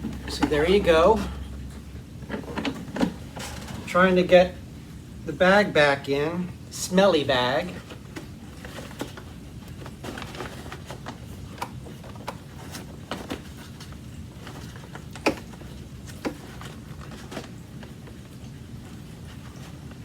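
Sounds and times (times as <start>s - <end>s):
plastic parts clicking and knocking: 8.1s - 17.5s.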